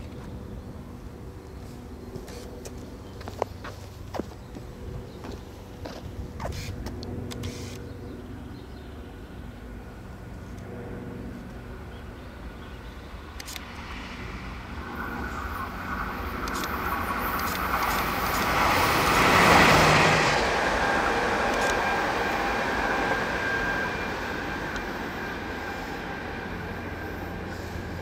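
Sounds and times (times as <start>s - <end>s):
electric train passing: 0.0s - 28.0s
steady whine: 0.0s - 28.0s
sharp clicks: 13.4s - 13.7s, 16.4s - 18.6s.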